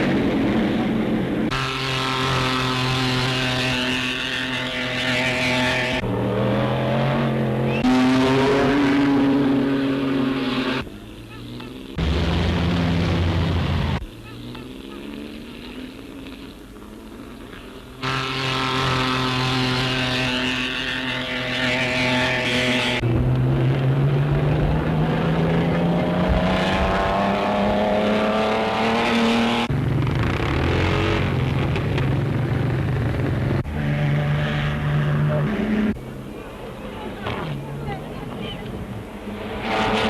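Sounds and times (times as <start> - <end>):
car accelerating: 0.0 - 40.0
racing car engines: 0.0 - 40.0.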